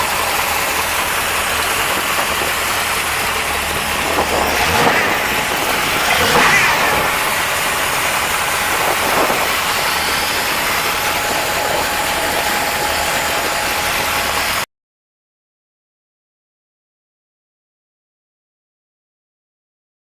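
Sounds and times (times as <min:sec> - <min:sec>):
car engine idling: 0:00.0 - 0:14.7.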